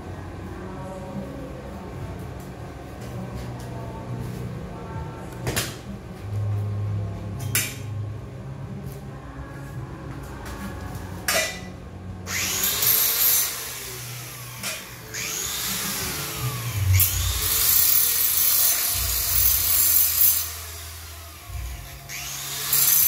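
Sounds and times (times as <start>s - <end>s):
power tool grinding steel: 12.3s - 23.0s.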